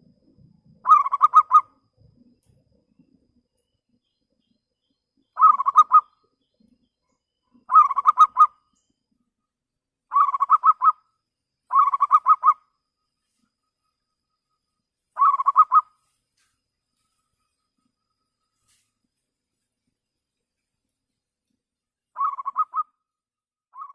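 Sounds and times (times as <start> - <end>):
dove cooing: 0.8 - 2.3, 5.4 - 6.1, 7.6 - 8.5, 10.1 - 11.0, 11.7 - 12.6, 15.2 - 15.9, 22.2 - 22.9.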